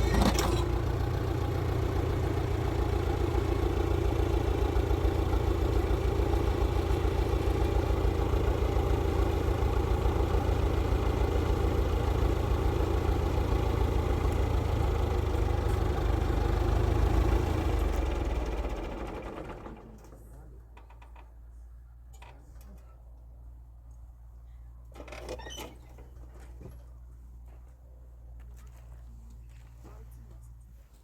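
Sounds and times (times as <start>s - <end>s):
motor engine running: 0.0s - 21.1s.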